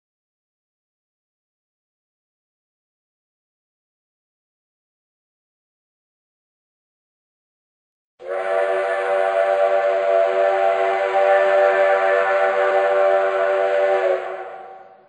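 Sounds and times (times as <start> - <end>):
steam train whistle: 8.2 - 15.0.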